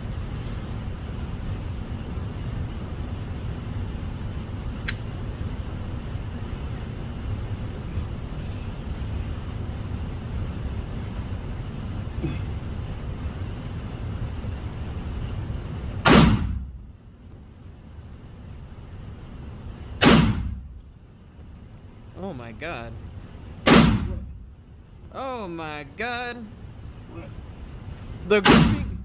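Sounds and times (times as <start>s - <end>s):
steady low rumble: 0.0s - 29.0s
gunshots with echo: 16.1s - 16.5s, 20.0s - 20.6s, 23.7s - 24.3s, 28.4s - 29.0s.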